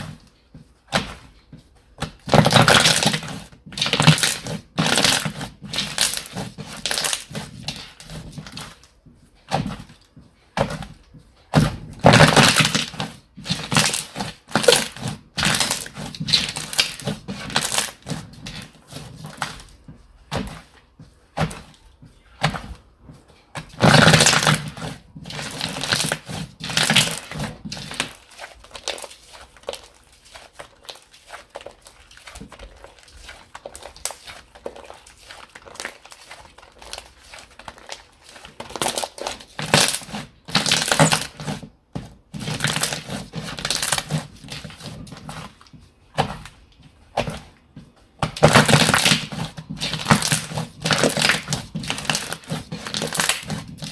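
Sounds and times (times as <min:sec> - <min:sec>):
slime crackling and popping: 0:02.0 - 0:08.7, 0:11.6 - 0:19.6, 0:23.6 - 0:41.6, 0:42.3 - 0:45.4, 0:48.2 - 0:53.9.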